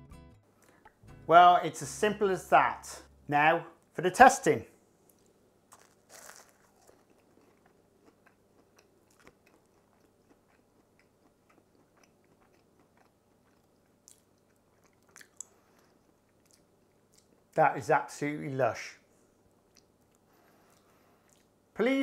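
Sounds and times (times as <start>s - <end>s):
crunchy chewing: 5.1s - 17.4s
bite into flaky pastry: 5.7s - 9.9s.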